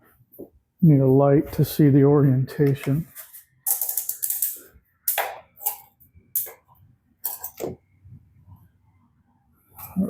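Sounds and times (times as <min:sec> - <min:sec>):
small objects clacking and scraping: 0:02.8 - 0:07.8.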